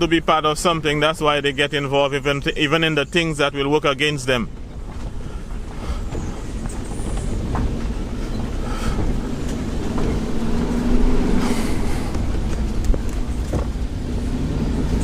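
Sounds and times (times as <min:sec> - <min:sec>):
vehicle engine and tyre rumble: 0:00.0 - 0:15.0
knocks and rattles: 0:04.5 - 0:11.3, 0:12.0 - 0:14.0.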